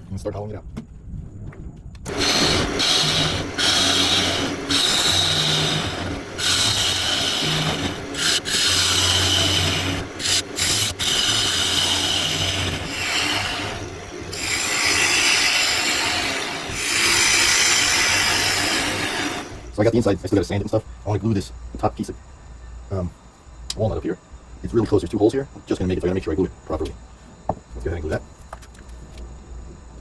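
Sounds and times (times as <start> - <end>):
lathe tool scraping wood: 2.1 - 19.7
lathe motor hum: 2.1 - 19.8.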